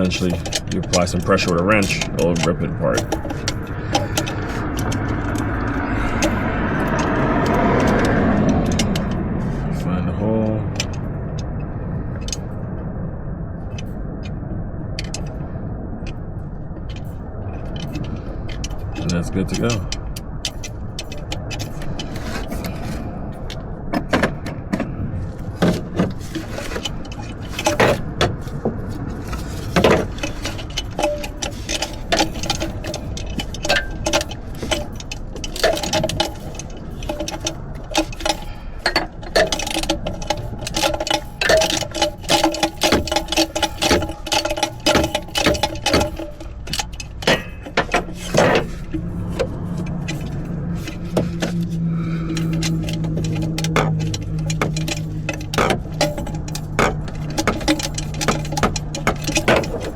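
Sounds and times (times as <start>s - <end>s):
hand ratchet clicking: 0.0s - 9.2s, 25.7s - 59.9s.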